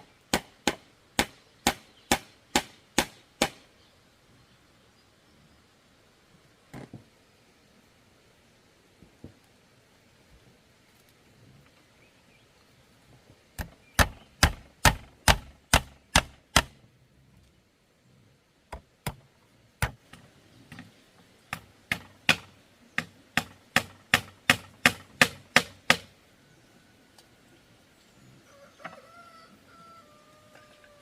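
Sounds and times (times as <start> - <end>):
hand tool striking bamboo: 13.6 - 16.8, 21.5 - 26.1.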